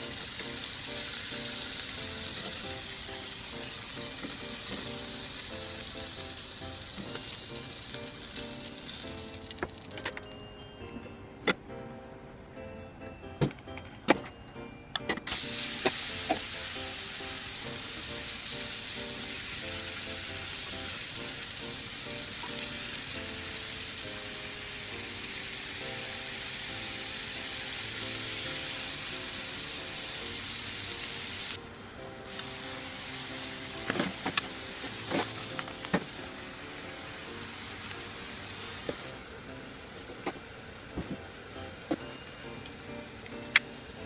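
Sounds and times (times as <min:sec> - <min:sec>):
vegetables sizzling in hot oil: 0:00.0 - 0:09.9, 0:15.3 - 0:31.6, 0:32.3 - 0:40.0.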